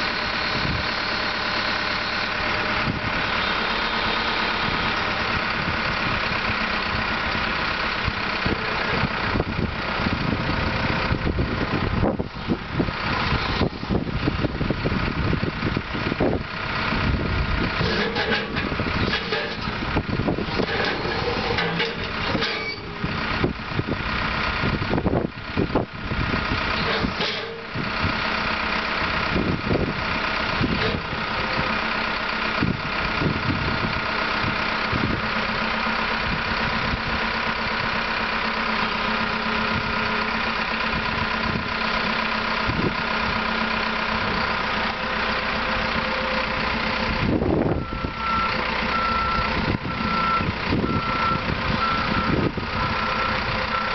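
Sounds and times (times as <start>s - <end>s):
reversing alarm beeping: 0.0s - 2.5s, 3.2s - 5.1s, 47.6s - 53.9s
loader diesel engine running: 0.0s - 53.9s
clunks: 17.7s - 23.6s, 26.7s - 28.1s, 30.6s - 31.7s.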